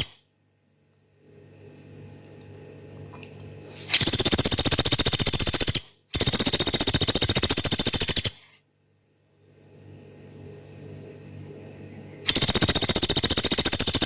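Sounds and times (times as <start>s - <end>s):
woodpecker rattling trills: 3.9s - 8.4s, 12.3s - 14.0s.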